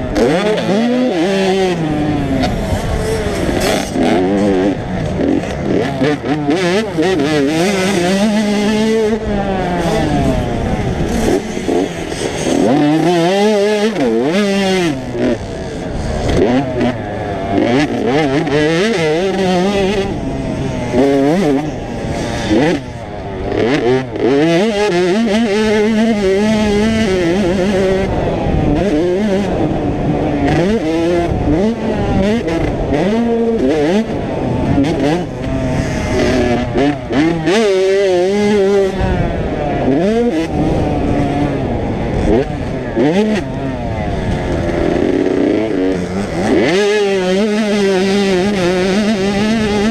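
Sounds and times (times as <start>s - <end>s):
motocross bikes revving: 0.0s - 49.9s.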